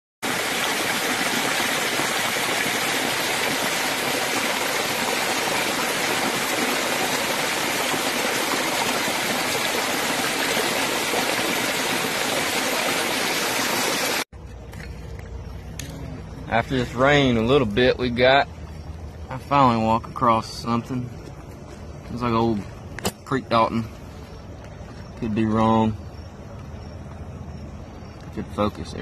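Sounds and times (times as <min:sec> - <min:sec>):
creek water rushing: 0:00.2 - 0:20.4.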